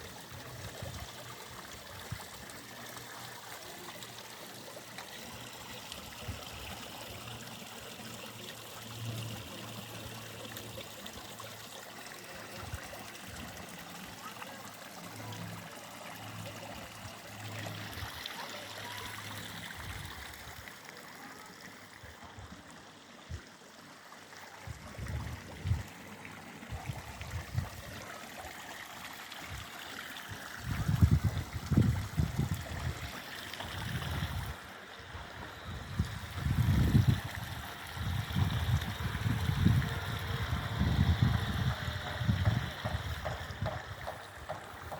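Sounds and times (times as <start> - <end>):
stream of water flowing: 0.0 - 44.9
wind buffeting microphone: 24.7 - 25.9, 30.6 - 33.0, 35.6 - 44.5.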